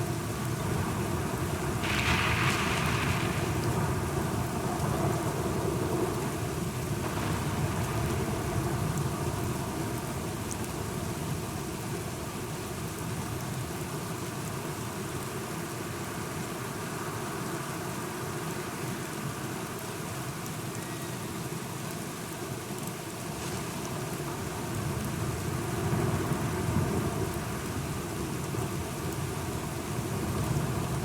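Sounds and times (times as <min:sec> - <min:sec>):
steady rain falling: 0:00.0 - 0:31.0
low rumble of thunder: 0:00.7 - 0:10.4.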